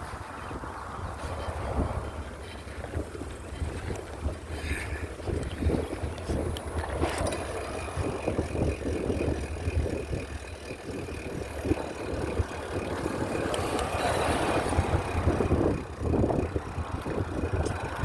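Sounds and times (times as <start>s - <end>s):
bicycle rumbling and rattling: 0.0s - 18.0s.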